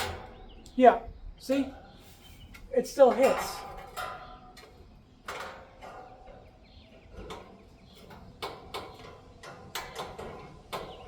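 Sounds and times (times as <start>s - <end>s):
fan blade striking cage: 0.0s - 0.5s, 3.0s - 11.0s.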